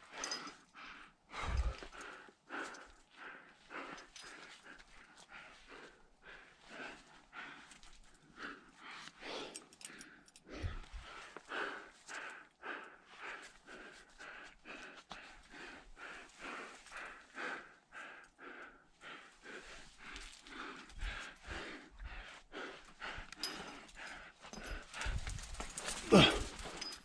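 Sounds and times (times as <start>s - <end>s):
person panting: 0.0s - 27.0s.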